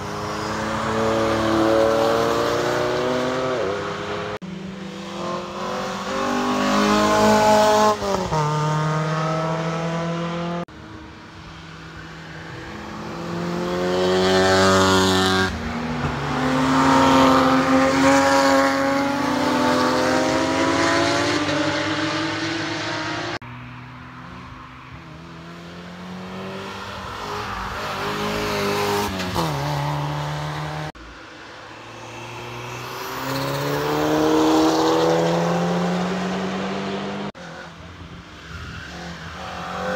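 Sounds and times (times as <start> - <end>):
sports cars accelerating past: 0.0 - 11.0, 31.7 - 37.8.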